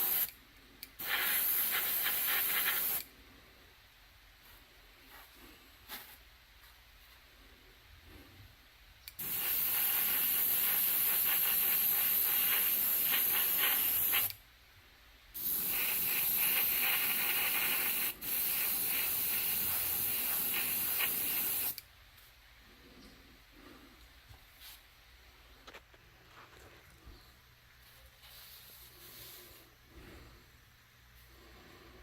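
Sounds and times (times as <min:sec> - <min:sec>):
spray paint spraying: 0:00.0 - 0:00.3, 0:01.0 - 0:03.1, 0:09.2 - 0:14.4, 0:15.4 - 0:21.8.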